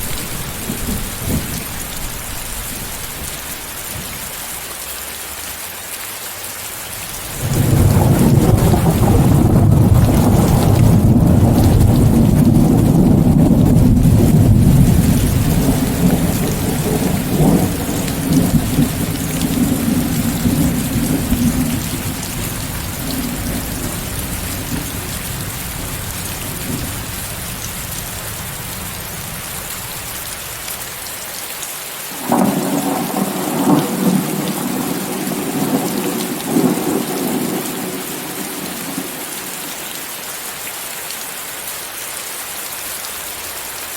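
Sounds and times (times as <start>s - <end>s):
thunder rumbling: 0.0s - 4.3s, 7.2s - 30.5s, 32.2s - 39.6s
steady rain hiss: 0.0s - 43.9s.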